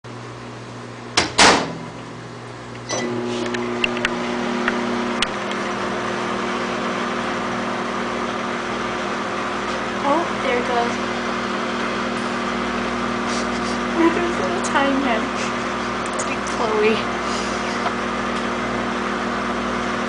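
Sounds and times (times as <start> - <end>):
microwave oven humming: 0.1 - 20.0
loud clunk: 1.2 - 1.9
short beep: 2.9 - 3.2.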